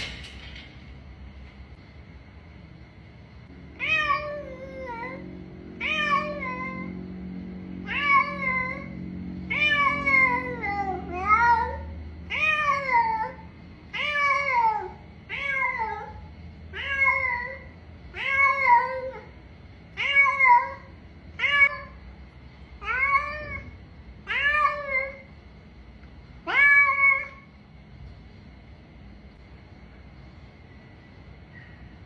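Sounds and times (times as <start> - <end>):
cat meowing: 3.7 - 7.0, 7.8 - 19.3, 19.9 - 22.0, 22.8 - 25.3, 26.4 - 27.5.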